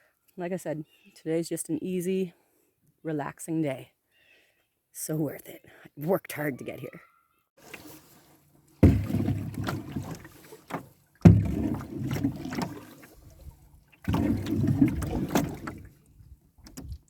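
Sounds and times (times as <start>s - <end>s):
paddle strokes through water: 7.6s - 17.0s.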